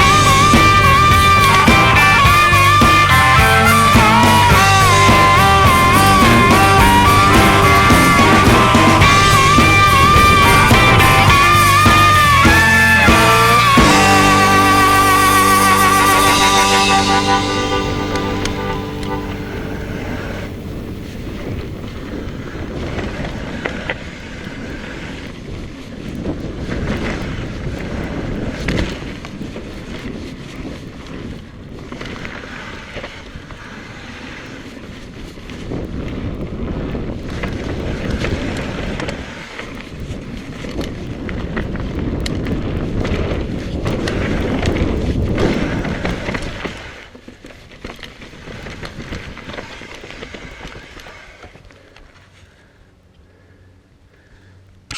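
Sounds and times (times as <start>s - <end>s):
wind buffeting microphone: 0.0s - 47.0s
bike tyres on dirt trail: 20.6s - 53.6s.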